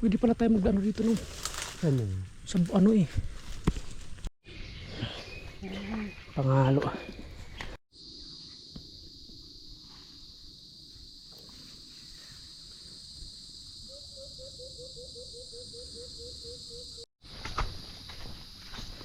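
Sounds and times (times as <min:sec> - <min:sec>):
night insect chorus: 0:07.6 - 0:19.0.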